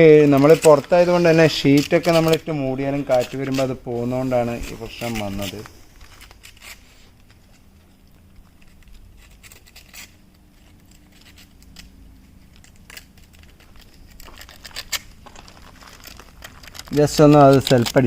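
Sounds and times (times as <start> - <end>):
faint low hum: 0.0 - 18.0
tools clicking and scratching on metal: 0.1 - 3.8, 4.6 - 18.0.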